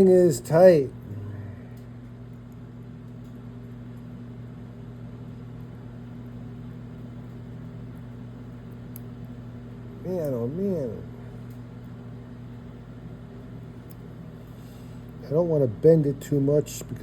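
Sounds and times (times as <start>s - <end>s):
low electrical hum: 0.0s - 17.0s
faint small clicks: 8.7s - 9.1s.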